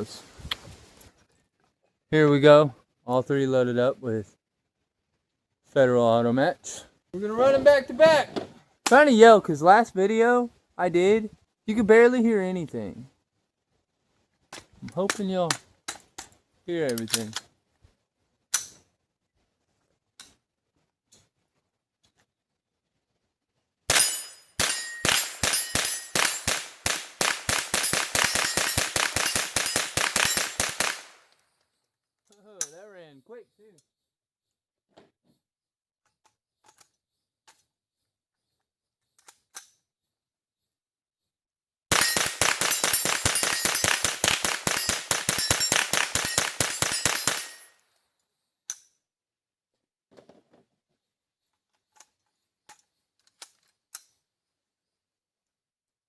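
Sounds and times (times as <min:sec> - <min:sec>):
rifle rapid semi-automatic fire: 0:24.6 - 0:31.2, 0:41.9 - 0:47.6.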